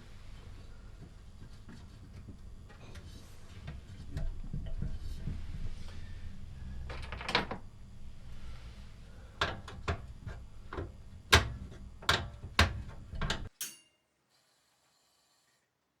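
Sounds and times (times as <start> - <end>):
low steady hum: 0.0 - 13.5
tools clicking and knocking: 9.4 - 13.8.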